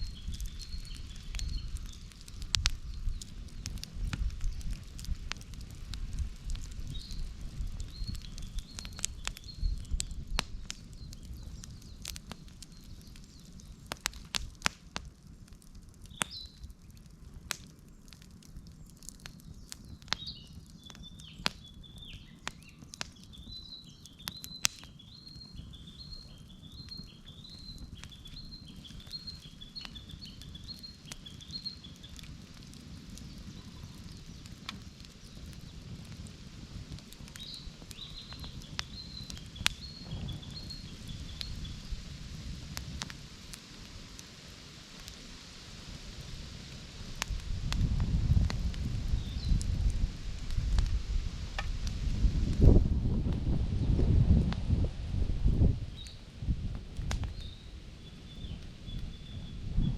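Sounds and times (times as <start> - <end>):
campfire crackling and popping: 0.0 - 59.9
bird chirping: 19.4 - 32.0.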